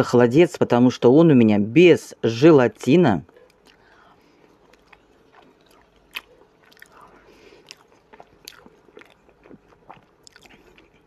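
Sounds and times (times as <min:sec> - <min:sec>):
person chewing: 0:03.3 - 0:11.0.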